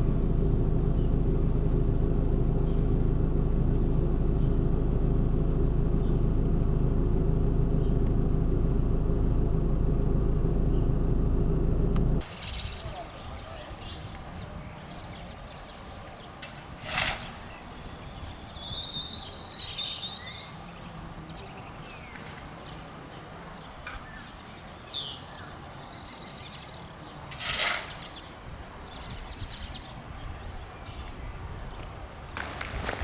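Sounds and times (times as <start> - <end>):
low rumble: 0.0 - 12.3
small birds chirping: 0.0 - 27.2.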